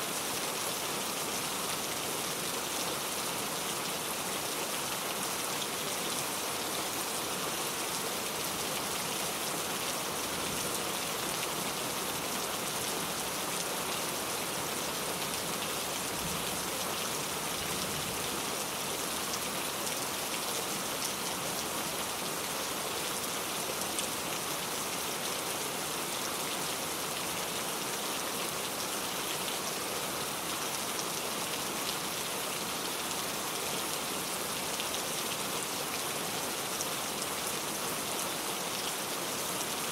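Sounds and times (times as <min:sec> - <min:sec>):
heavy rain falling: 0:00.1 - 0:39.9.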